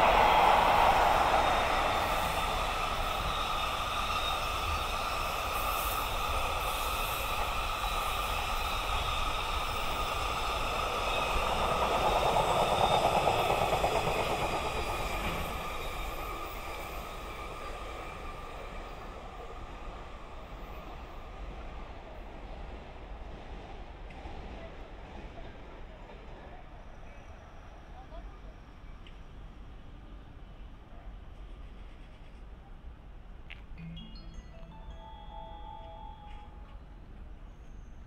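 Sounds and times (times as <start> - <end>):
freight train rolling on rails: 0.0 - 38.0
faint steady tones: 33.8 - 37.8.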